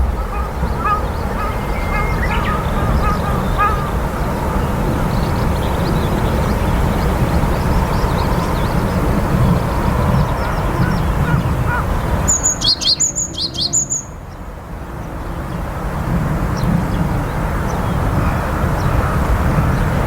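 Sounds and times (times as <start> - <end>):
steady low rumble: 0.0 - 12.6
bird chirping: 0.0 - 14.4.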